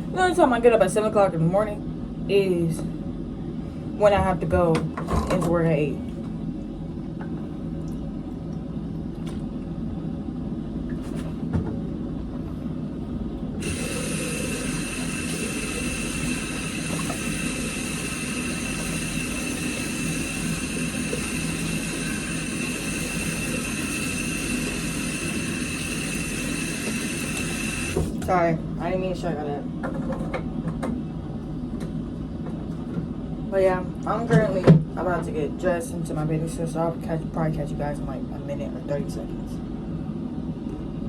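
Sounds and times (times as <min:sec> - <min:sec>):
low machine hum: 0:00.0 - 0:41.0
hiss with high thin whine: 0:13.6 - 0:28.0.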